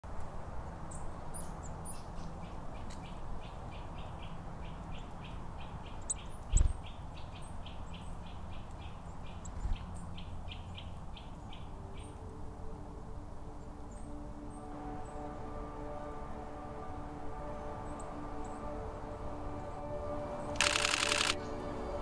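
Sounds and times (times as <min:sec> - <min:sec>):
high bird chips: 0:20.6 - 0:21.4.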